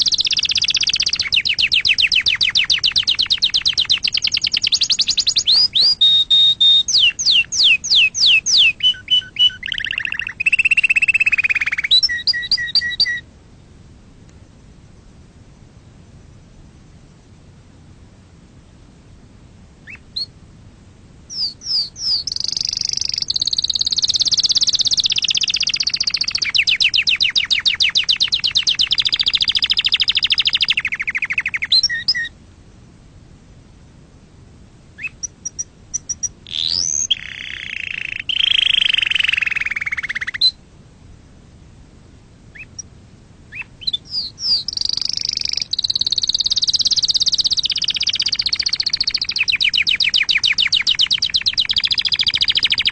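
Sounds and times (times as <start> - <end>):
canary singing: 0.0 - 13.3, 19.8 - 20.3, 21.3 - 32.3, 35.0 - 40.6, 42.5 - 42.9, 43.5 - 52.9.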